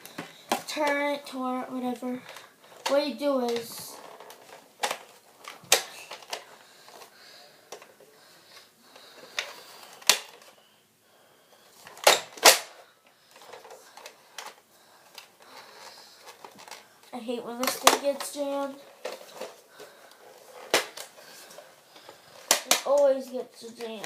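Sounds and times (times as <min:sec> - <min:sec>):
toy gun plastic clicking: 0:02.3 - 0:07.0, 0:09.3 - 0:10.5, 0:11.9 - 0:16.8, 0:17.6 - 0:18.3, 0:20.6 - 0:21.1, 0:22.0 - 0:23.1.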